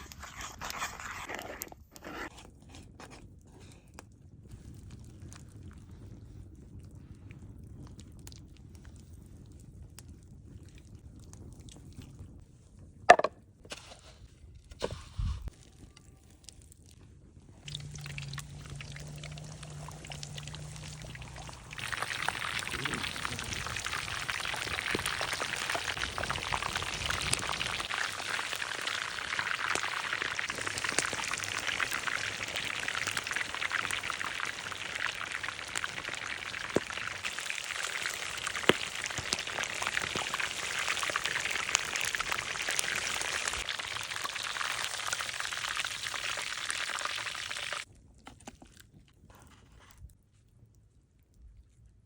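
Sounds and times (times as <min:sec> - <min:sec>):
meat sizzling over fire: 0:17.5 - 0:47.9.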